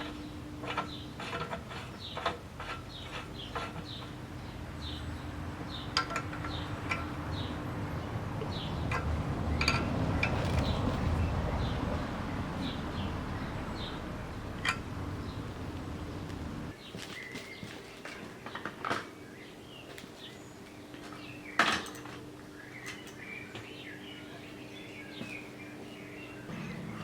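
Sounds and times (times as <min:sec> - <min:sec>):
low steady rumble: 0:04.0 - 0:16.8.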